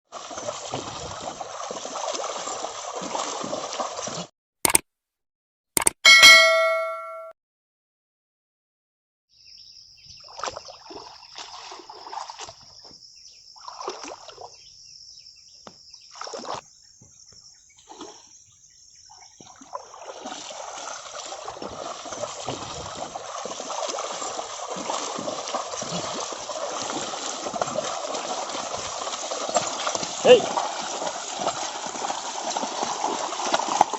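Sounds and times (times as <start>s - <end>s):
muddy water splashing: 0.1s - 4.3s, 10.2s - 14.8s, 16.0s - 16.7s, 17.8s - 18.4s, 19.0s - 33.9s.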